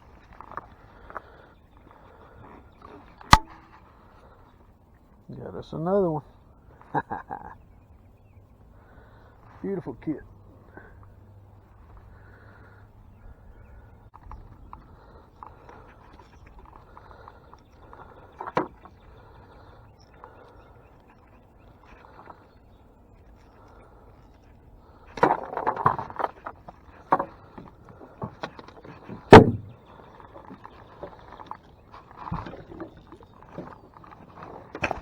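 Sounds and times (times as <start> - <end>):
knocks and thumps in a boat: 25.2 - 35.0.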